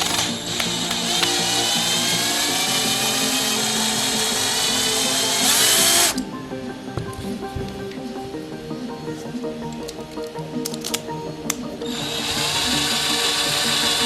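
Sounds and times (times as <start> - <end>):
power drill motor whine: 0.0 - 6.2, 11.9 - 14.0.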